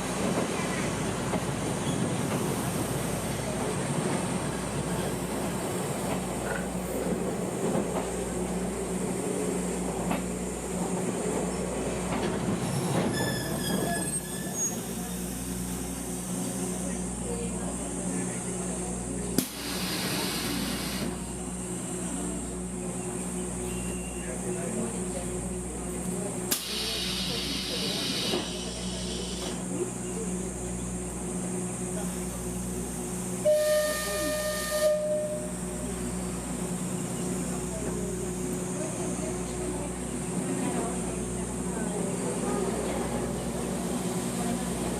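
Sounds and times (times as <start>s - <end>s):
train engine drone: 0.0s - 44.9s
hiss: 19.4s - 21.2s, 26.5s - 29.6s
locomotive whistle blast: 33.4s - 35.6s.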